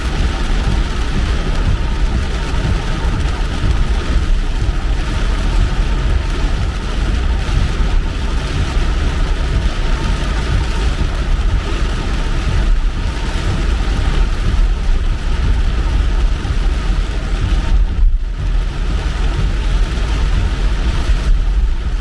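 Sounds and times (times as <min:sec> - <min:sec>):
car road and engine noise: 0:00.0 - 0:22.0.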